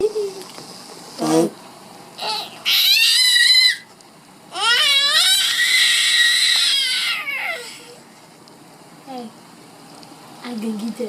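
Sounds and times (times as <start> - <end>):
baby squealing with laughter: 2.2 - 3.9, 4.6 - 7.8.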